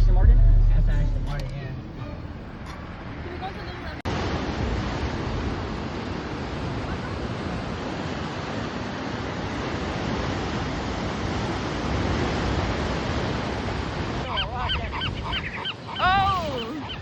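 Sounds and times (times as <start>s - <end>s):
surf: 0.0s - 17.0s
wind: 0.0s - 17.0s
birds calling: 14.2s - 17.0s.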